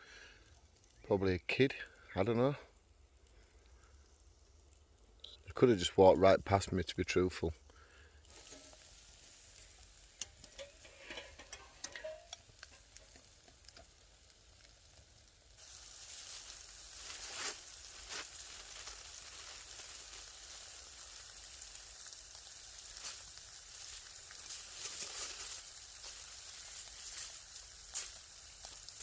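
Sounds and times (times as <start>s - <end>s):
wood fire crackles: 0.0s - 29.0s
meat sizzling in a pan: 7.7s - 29.0s.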